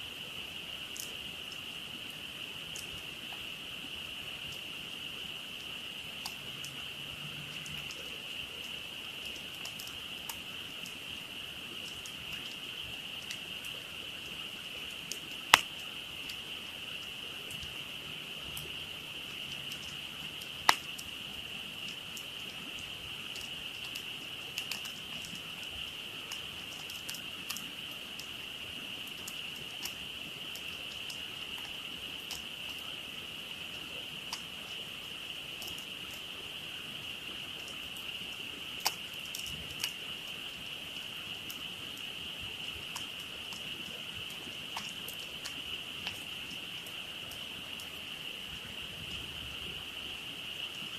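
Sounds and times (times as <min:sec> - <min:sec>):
campfire crackling: 0:00.0 - 0:50.9
sharp pops from fire: 0:14.9 - 0:16.4, 0:19.5 - 0:21.2, 0:38.8 - 0:40.0.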